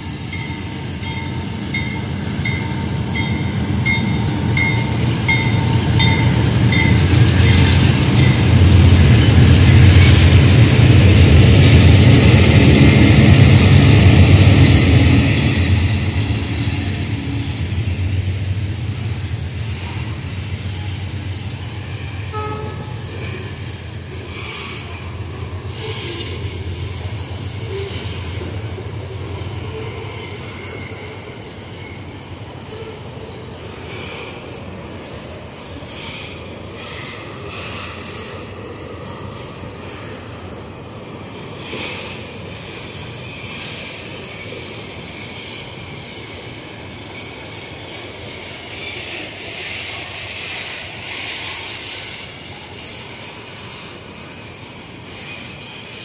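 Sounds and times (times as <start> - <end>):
diesel locomotive engines: 0.0 - 56.0.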